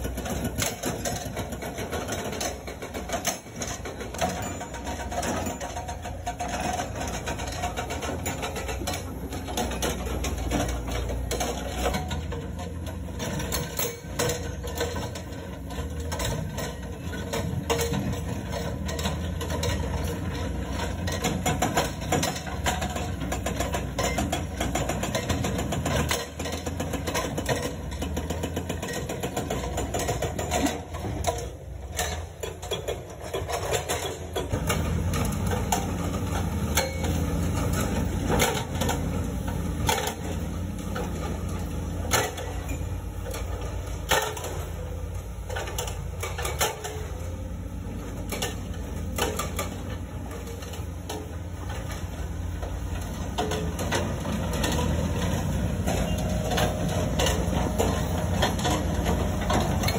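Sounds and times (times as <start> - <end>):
hydraulic breaker hammering rock: 0.0 - 47.4
diesel engine running: 0.0 - 59.9.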